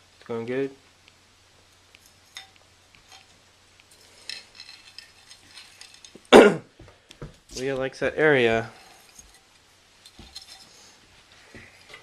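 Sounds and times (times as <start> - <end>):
christmas ornaments clinking: 2.0 - 6.4, 8.4 - 11.0.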